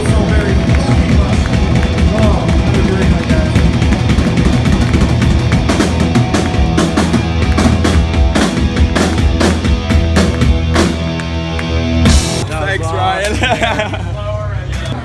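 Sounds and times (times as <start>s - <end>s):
drums and cymbals hitting: 0.0s - 11.3s, 12.0s - 12.4s
heavy rock music: 0.0s - 12.5s.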